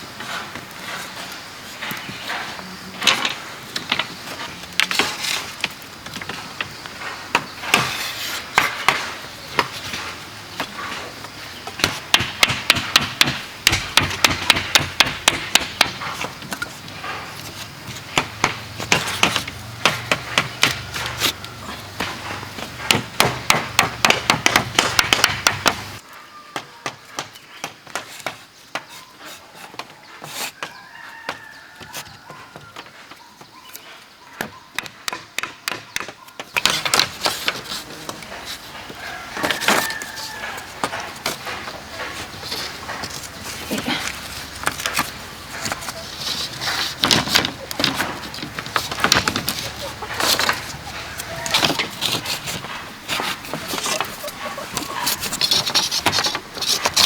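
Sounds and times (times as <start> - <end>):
tool striking bamboo: 11.7 - 26.0, 34.8 - 57.0.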